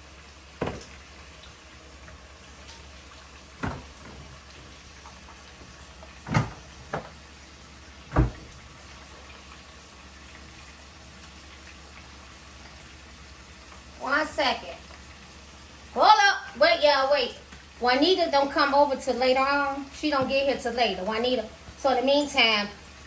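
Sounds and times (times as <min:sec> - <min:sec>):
potatoes sizzling in a pan: 0:00.0 - 0:23.0
sharp kitchen knocks: 0:00.6 - 0:00.9, 0:03.6 - 0:04.3, 0:06.2 - 0:07.1, 0:08.1 - 0:08.6.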